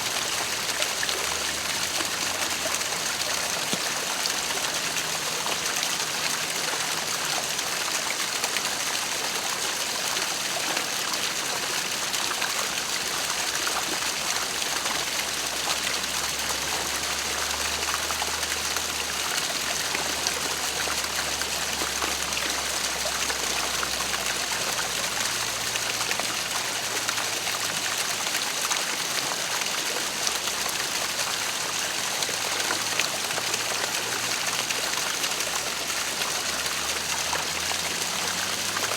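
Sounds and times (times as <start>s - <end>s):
waterfall rushing: 30.8s - 38.9s.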